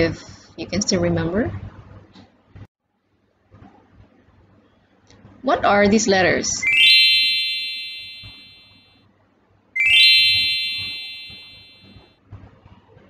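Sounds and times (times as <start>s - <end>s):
bell-like chime: 6.6s - 8.7s, 9.8s - 11.9s.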